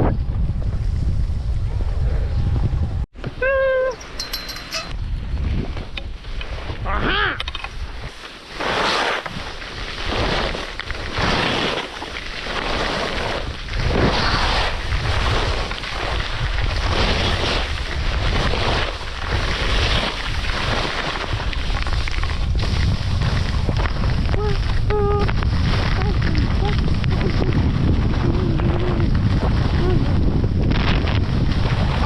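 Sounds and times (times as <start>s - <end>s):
wind on microphone: 0.0s - 32.0s
skis scraping on icy snow: 8.0s - 32.0s.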